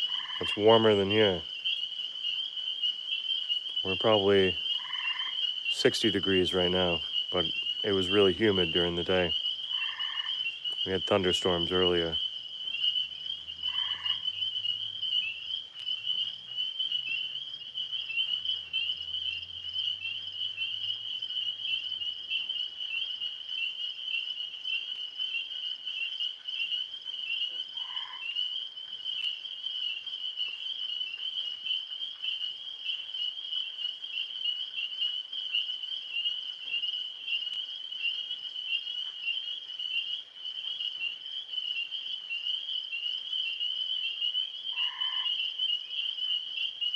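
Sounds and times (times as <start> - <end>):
tree frogs trilling: 0.0 - 46.9.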